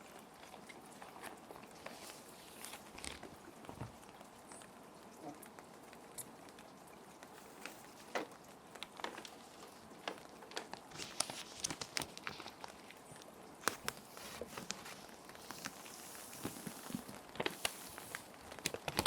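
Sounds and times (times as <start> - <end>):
plastic sheet protectors crinkling: 1.1 - 3.8, 7.4 - 19.0
rain hissing: 5.6 - 19.0.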